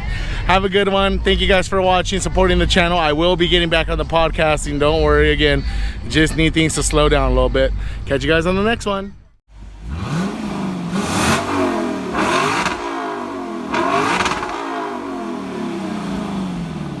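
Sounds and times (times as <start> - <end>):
car engine revving: 9.5 - 17.0.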